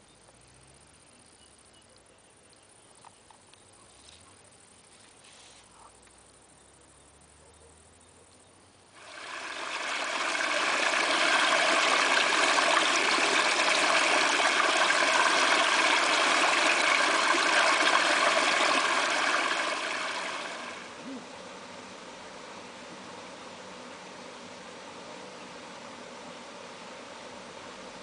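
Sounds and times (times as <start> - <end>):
flowing water rushing: 9.0 - 21.0.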